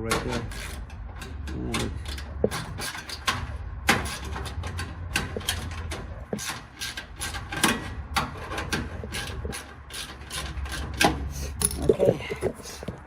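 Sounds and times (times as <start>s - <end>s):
metal parts scraping and clicking: 0.0s - 13.0s.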